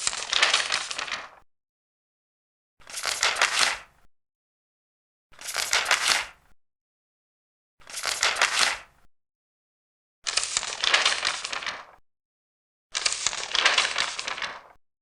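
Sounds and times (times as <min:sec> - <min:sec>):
paper pages turning: 0:00.0 - 0:01.4, 0:02.8 - 0:03.8, 0:05.4 - 0:06.4, 0:07.8 - 0:08.9, 0:10.3 - 0:12.0, 0:13.0 - 0:14.8.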